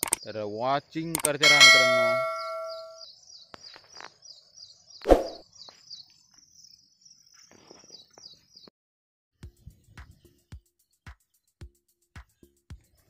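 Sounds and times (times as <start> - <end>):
bird chirping rapidly: 1.2 - 3.5.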